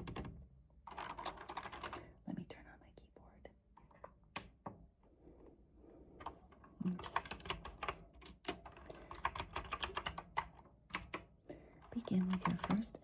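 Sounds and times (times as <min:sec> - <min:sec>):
mechanical keyboard typing: 0:00.9 - 0:02.0, 0:06.2 - 0:13.0.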